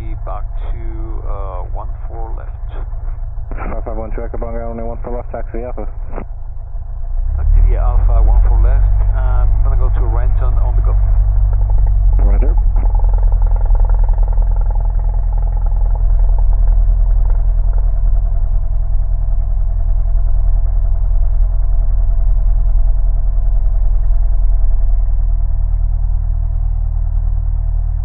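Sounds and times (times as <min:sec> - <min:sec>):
propeller plane engine droning: 0:00.0 - 0:28.0.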